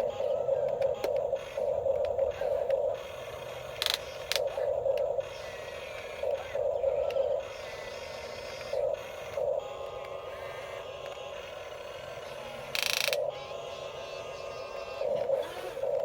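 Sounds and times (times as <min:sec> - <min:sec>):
steady motor hum: 0:00.0 - 0:16.0
toy electric motors whining: 0:00.0 - 0:16.0
sharp clicks: 0:03.8 - 0:05.4, 0:12.7 - 0:13.3.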